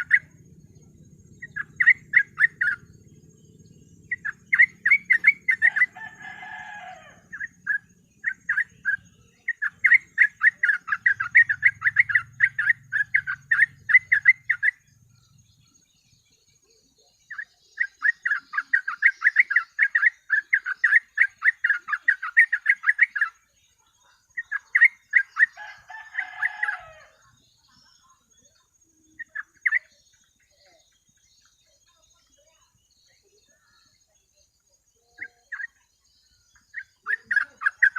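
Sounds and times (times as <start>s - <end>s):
bird chattering song: 0.0s - 37.9s.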